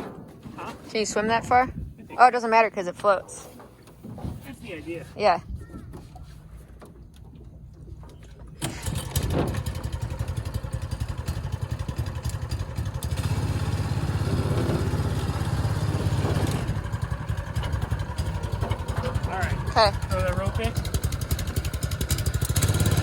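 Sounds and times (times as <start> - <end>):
lawnmower engine pulsing: 8.5 - 23.0.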